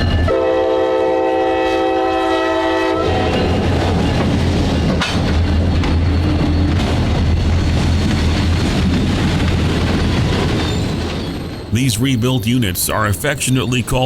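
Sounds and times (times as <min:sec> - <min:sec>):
train engine hum: 0:00.0 - 0:14.0
train wheels rolling on rails: 0:03.0 - 0:12.6.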